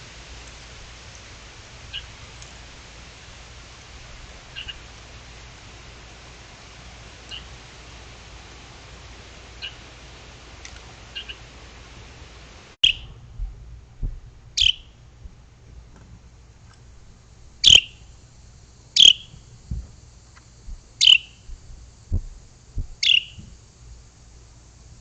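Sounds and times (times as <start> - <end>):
bird short sharp calls: 4.5 - 4.8, 11.2 - 11.4, 12.8 - 13.1, 14.6 - 15.0, 17.6 - 18.1, 19.0 - 19.4, 21.0 - 21.5, 23.0 - 23.4
soft low knocks: 13.0 - 14.5, 19.3 - 23.6.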